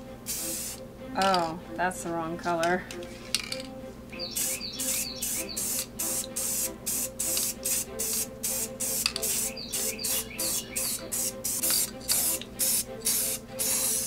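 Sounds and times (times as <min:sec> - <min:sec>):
background music: 0:00.0 - 0:14.0
spray paint can hissing: 0:00.3 - 0:00.8, 0:04.2 - 0:14.0.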